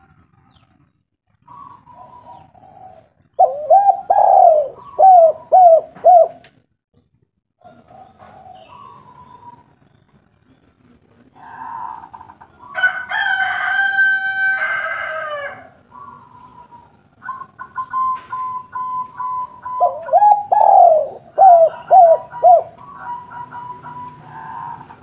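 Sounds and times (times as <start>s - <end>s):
dove cooing: 1.4s - 6.5s, 7.6s - 9.7s, 11.3s - 13.0s, 15.4s - 25.0s
rooster crowing: 12.6s - 15.8s, 21.5s - 25.0s.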